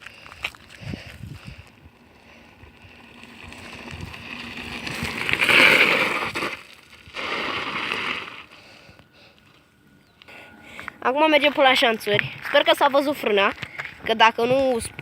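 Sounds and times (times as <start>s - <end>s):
bicycle tyres rolling on gravel: 0.0s - 9.8s, 10.7s - 15.0s
bicycle skidding: 0.2s - 9.5s.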